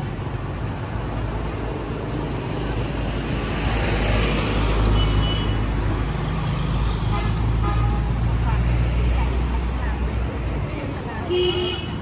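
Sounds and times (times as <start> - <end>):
traffic: 0.0 - 12.0.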